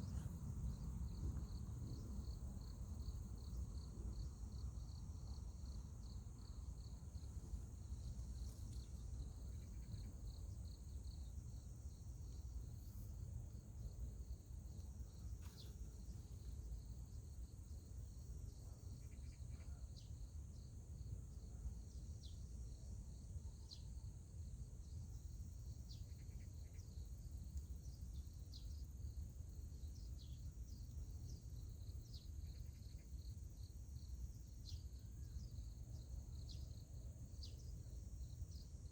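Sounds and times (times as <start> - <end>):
low steady rumble: 0.0 - 18.8
insects chirping trill: 0.0 - 38.9.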